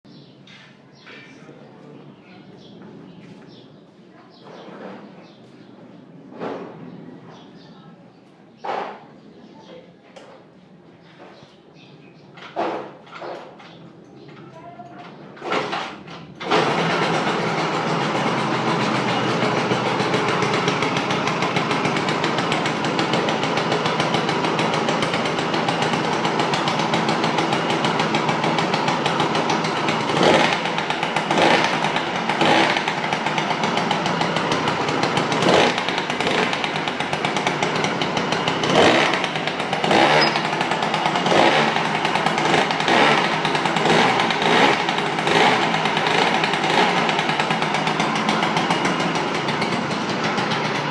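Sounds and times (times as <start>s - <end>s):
scooter engine idling: 12.2s - 50.9s
scooter engine revving: 15.4s - 50.9s.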